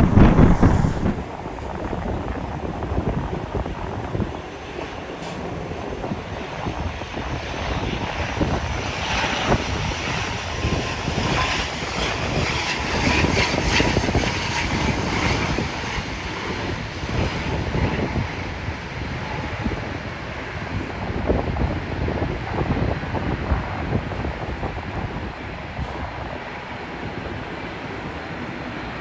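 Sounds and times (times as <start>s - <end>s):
turboprop airliner droning: 0.0s - 1.2s.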